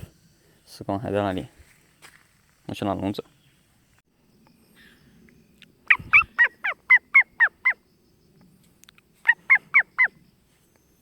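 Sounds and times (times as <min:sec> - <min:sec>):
starling calling: 0:05.8 - 0:07.9, 0:09.2 - 0:10.2.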